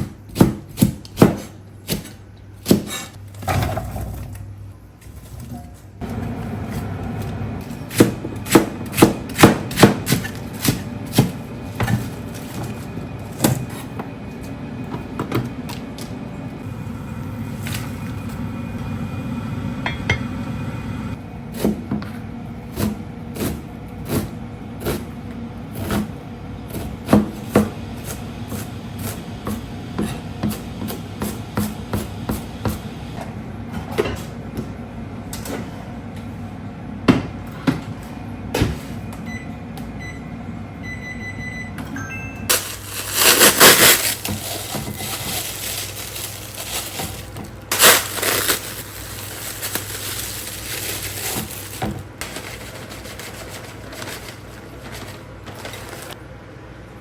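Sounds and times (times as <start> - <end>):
knife chopping on wooden board: 0.0 - 3.1
low hum: 10.2 - 21.2.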